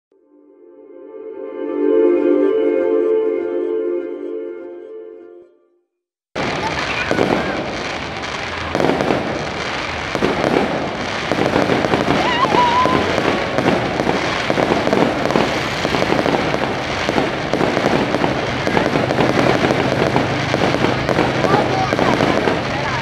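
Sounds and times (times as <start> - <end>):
fireworks crackling and banging: 6.4 - 23.0.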